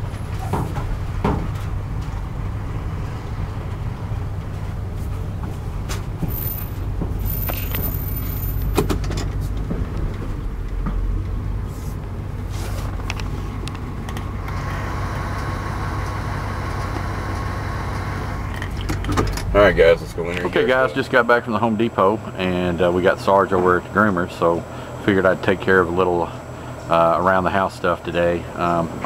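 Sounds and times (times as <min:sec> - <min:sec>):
car engine and road rumble: 0:00.0 - 0:27.3.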